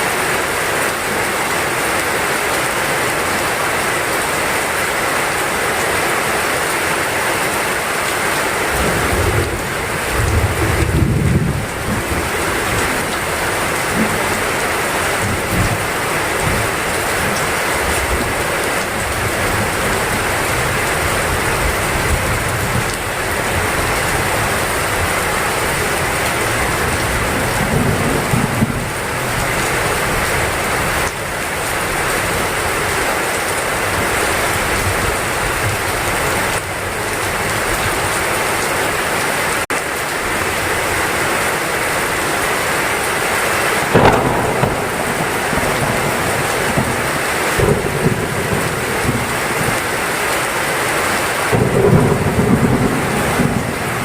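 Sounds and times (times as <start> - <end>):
heavy rain pouring: 0.0 - 54.0
thunderclap: 8.7 - 17.4, 43.9 - 50.1, 51.5 - 54.0
thunder rumbling: 8.7 - 18.4, 19.0 - 32.2, 43.8 - 50.5, 51.5 - 54.0.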